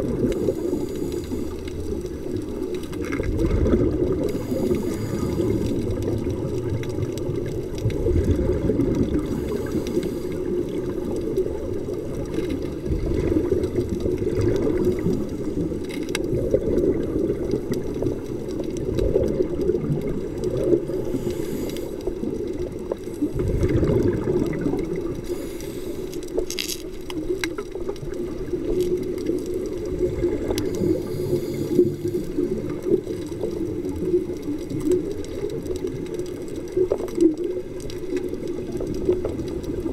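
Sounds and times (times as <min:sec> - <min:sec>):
scuba breathing: 0:00.0 - 0:27.0, 0:28.1 - 0:34.7
muffled underwater water rush: 0:00.0 - 0:39.9
faint clicks: 0:00.1 - 0:39.9.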